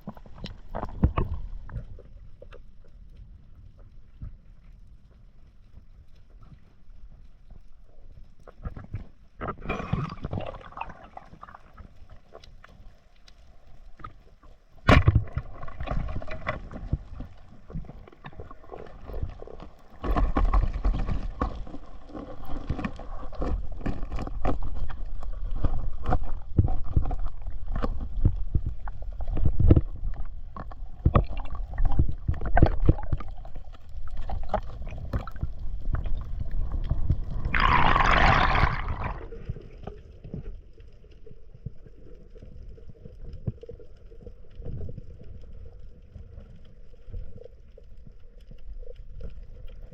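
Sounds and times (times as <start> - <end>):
water sloshing and gurgling: 0.0 - 49.9.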